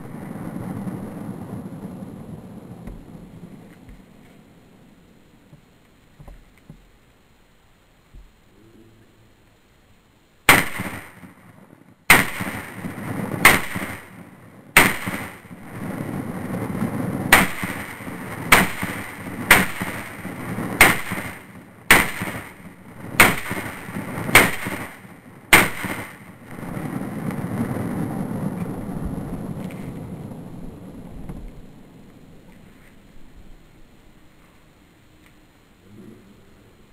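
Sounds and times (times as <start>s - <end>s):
steady rushing noise: 0.0s - 36.9s
pistol shots: 10.5s - 11.4s, 12.1s - 14.2s, 14.8s - 15.5s, 17.3s - 26.3s.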